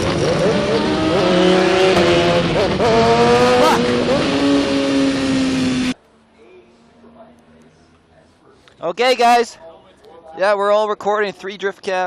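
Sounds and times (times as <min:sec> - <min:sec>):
motorcycle engine at high revs: 0:00.0 - 0:06.0.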